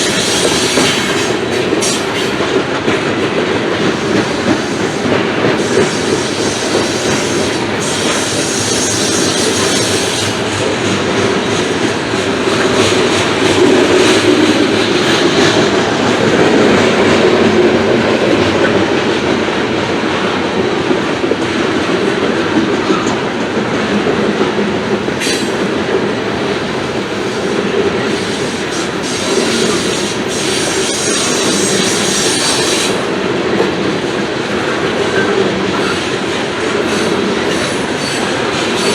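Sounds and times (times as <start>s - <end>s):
freight train wheels clattering on rails: 0.0s - 38.9s.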